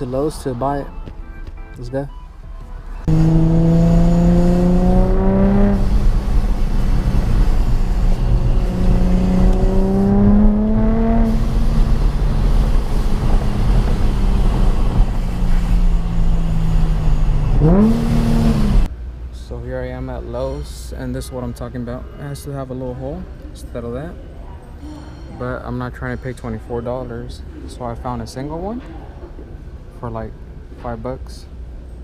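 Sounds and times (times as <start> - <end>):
car engine accelerating: 3.0 - 18.9.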